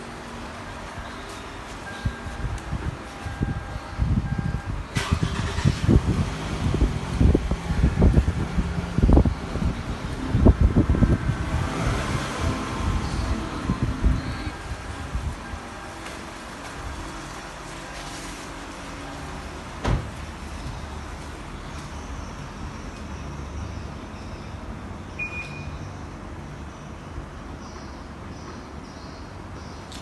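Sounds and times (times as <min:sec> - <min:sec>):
loud thump: 0:19.8 - 0:20.2
brief high beep: 0:25.2 - 0:25.8.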